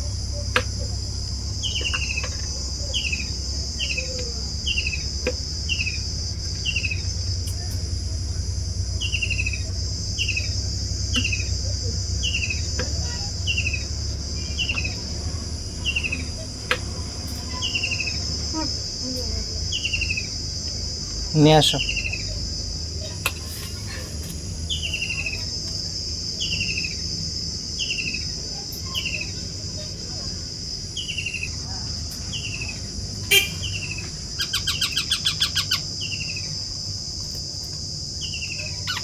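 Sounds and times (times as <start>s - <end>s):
low steady hum: 0.0s - 26.5s
insects droning: 0.0s - 39.0s
bird chirping: 1.5s - 5.1s, 6.6s - 7.7s, 9.0s - 11.6s, 12.2s - 15.0s, 24.6s - 25.4s, 31.0s - 31.5s, 32.2s - 36.5s.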